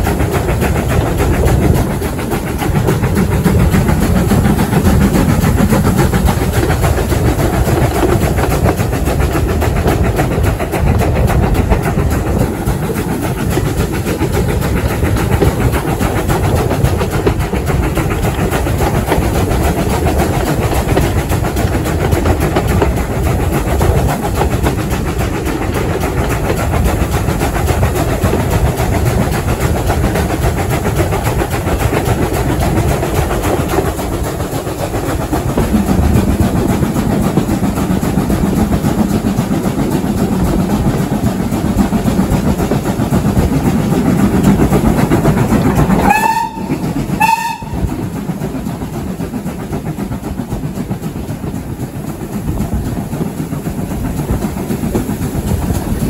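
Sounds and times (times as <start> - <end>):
train wheels rumbling and clattering: 0.0 - 56.0
locomotive whistle blasts: 46.0 - 47.9.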